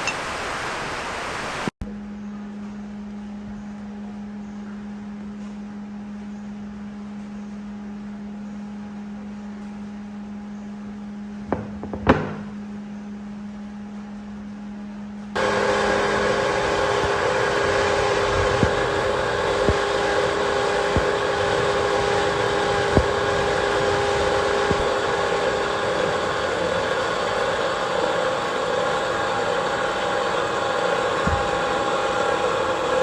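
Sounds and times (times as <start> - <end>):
sharp knocks: 11.5 - 12.6
electric motor humming: 15.4 - 33.0
loud noisy machine running: 15.4 - 33.0.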